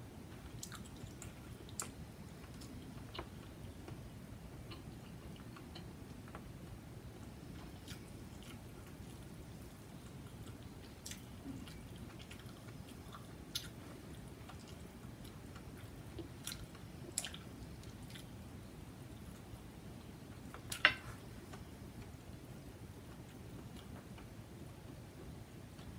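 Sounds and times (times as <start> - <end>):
low steady hum: 0.0 - 25.9
person chewing food: 0.4 - 4.0, 4.6 - 6.4, 7.5 - 18.4.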